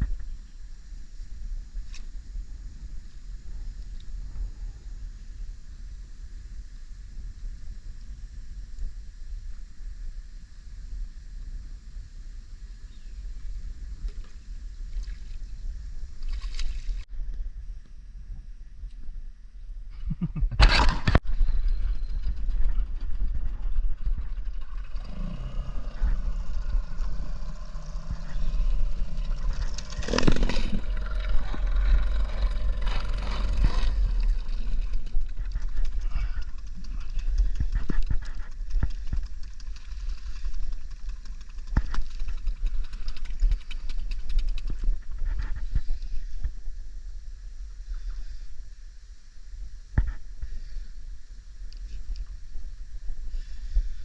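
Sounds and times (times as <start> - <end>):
wind rumble on microphone: 0.0 - 54.0
water noise: 20.6 - 46.1
boat engine hum: 21.6 - 44.6.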